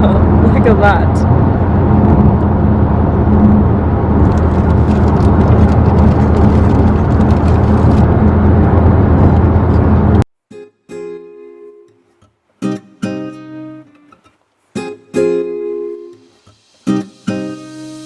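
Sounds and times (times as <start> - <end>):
low engine drone: 0.0 - 10.2
car road and wind noise: 0.0 - 10.3
plucked acoustic guitar: 4.2 - 18.0.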